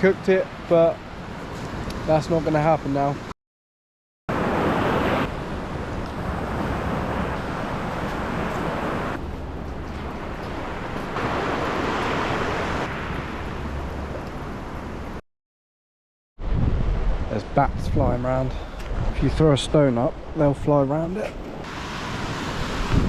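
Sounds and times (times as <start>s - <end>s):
surf washing on shore: 4.3s - 15.2s, 16.4s - 23.0s
wind rumbling on microphone: 4.3s - 15.2s, 16.4s - 20.4s, 21.4s - 23.0s.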